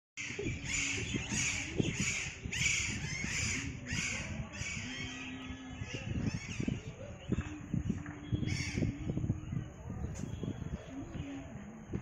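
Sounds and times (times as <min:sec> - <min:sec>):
harsh bird calls: 0:00.2 - 0:09.8.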